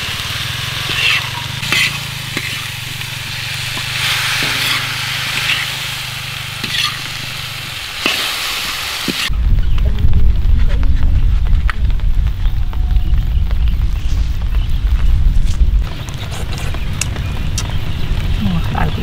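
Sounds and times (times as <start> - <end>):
food sizzling in a wok: 0.0 - 9.3
spatula scraping a wok: 0.3 - 9.3.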